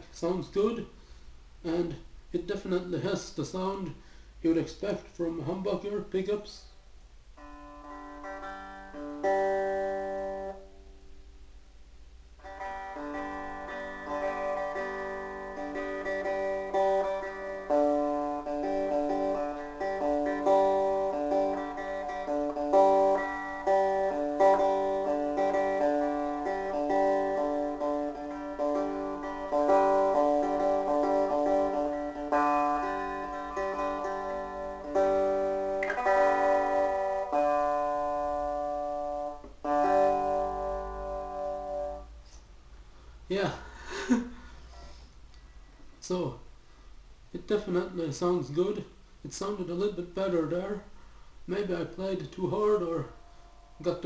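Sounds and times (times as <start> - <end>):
electric guitar chords: 7.3 - 11.6, 12.2 - 44.6.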